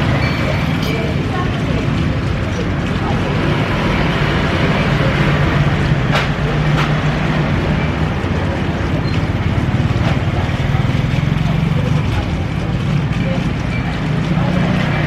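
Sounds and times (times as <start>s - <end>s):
vehicle engine and traffic hum: 0.0s - 15.0s.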